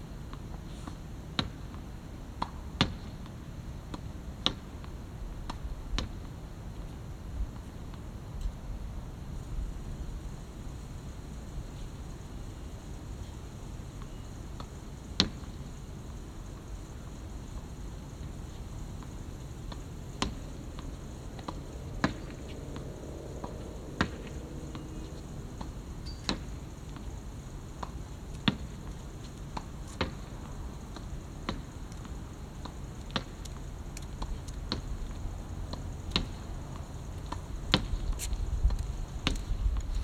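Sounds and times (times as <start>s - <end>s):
low background rumble: 16.8s - 33.0s
racket hitting shuttlecock: 19.7s - 27.1s.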